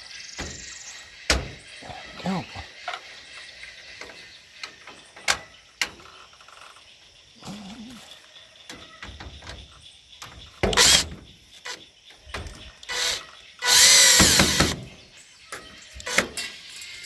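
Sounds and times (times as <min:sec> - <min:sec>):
power drill driving screws: 0:10.7 - 0:11.1, 0:12.9 - 0:14.8.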